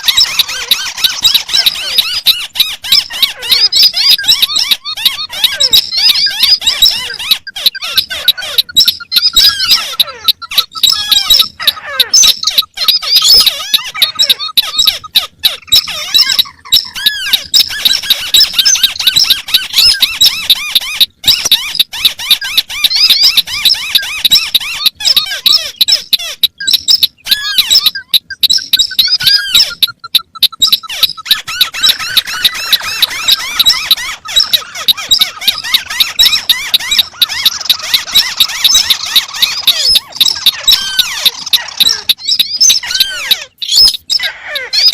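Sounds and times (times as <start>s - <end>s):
birds squeaking calls: 0.0s - 44.9s
descending whistled bird notes: 0.0s - 44.9s.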